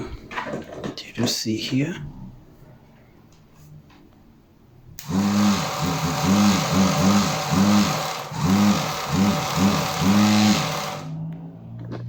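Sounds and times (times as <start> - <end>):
electric motor humming: 5.0 - 11.2.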